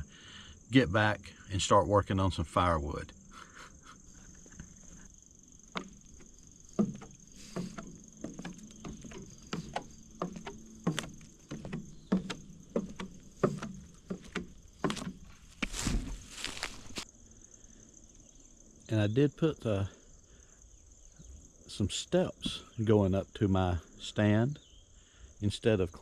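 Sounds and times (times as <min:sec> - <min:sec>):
high insect buzz: 0:02.8 - 0:22.8, 0:23.8 - 0:25.4
footsteps on wooden steps: 0:05.6 - 0:17.1
scuffing rustle: 0:05.8 - 0:17.1.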